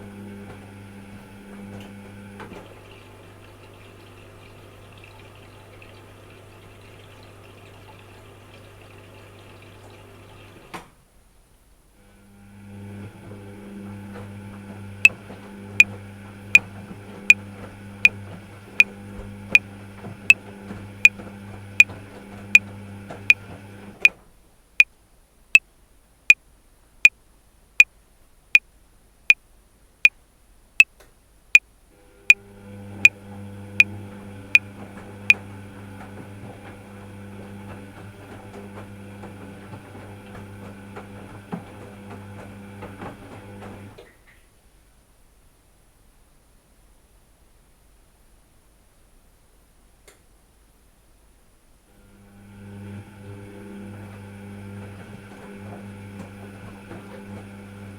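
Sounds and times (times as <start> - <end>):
low mechanical hum: 51.8 - 57.9.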